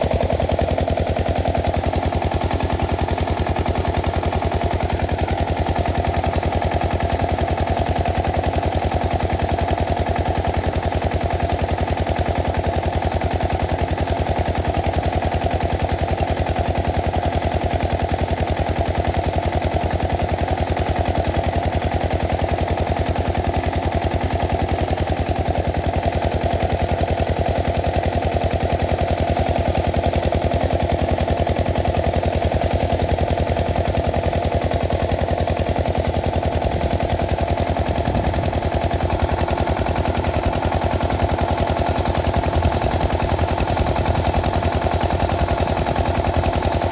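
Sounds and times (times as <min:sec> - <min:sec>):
diesel engine thudding: 0:36.0 - 0:44.3.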